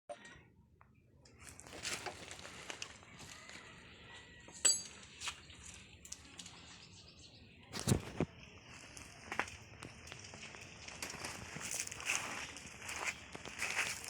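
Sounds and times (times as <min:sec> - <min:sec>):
metal tools knocking and clicking: 0:04.6 - 0:05.0
ringing metallic clink: 0:04.6 - 0:05.0.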